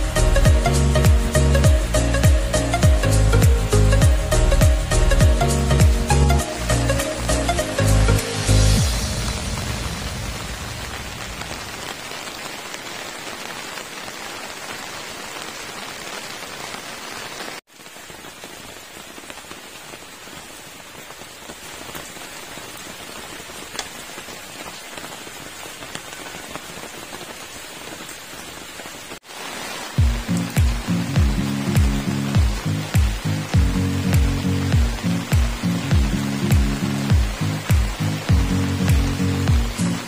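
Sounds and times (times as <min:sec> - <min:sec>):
music with a beat: 0:00.0 - 0:09.0, 0:30.0 - 0:40.0
rain falling: 0:00.0 - 0:40.0.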